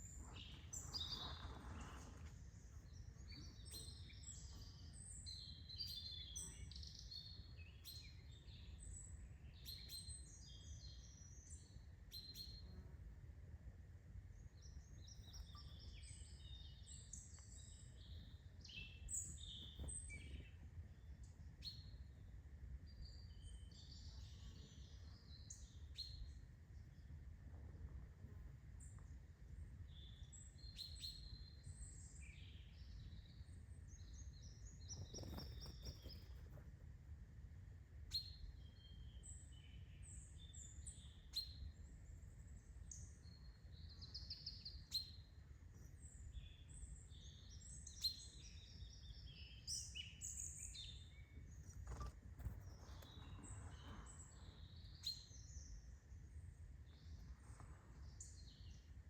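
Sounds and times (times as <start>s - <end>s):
small birds chirping: 0.0s - 12.9s, 14.3s - 27.6s, 28.2s - 36.8s, 38.1s - 59.0s
faint low rumble: 12.2s - 49.2s, 50.3s - 59.0s.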